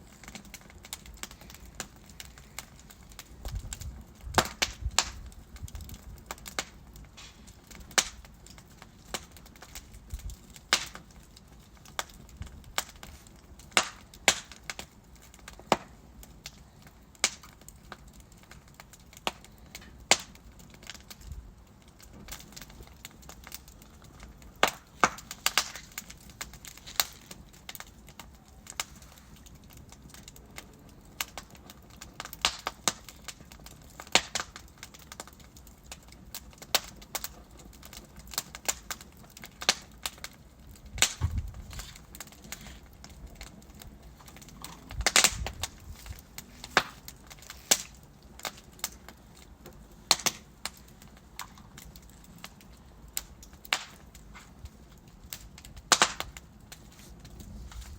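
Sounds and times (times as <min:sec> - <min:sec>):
wood logs crackling and popping: 0:00.0 - 0:57.9
flames hissing: 0:05.8 - 0:10.2, 0:40.8 - 0:55.4.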